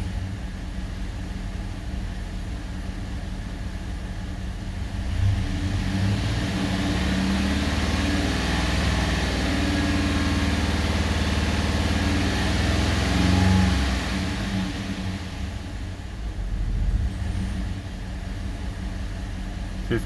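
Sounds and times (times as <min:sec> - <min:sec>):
truck engine idling: 0:15.6 - 0:20.0.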